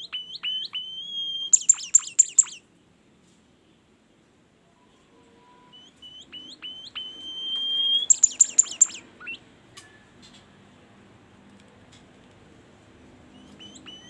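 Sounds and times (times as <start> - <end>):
songbird singing: 0.0 - 2.7, 4.8 - 10.5, 13.2 - 14.0.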